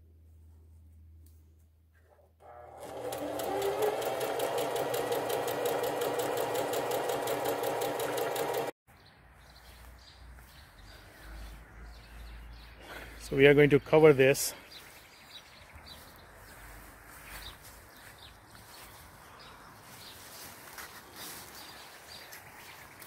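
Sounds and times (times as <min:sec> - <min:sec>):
electric sewing machine stitching: 0:02.4 - 0:08.8.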